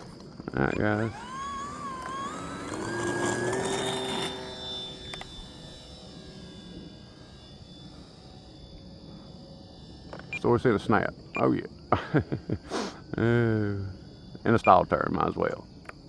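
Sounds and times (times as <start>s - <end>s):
model plane motor whining: 0.0s - 11.0s.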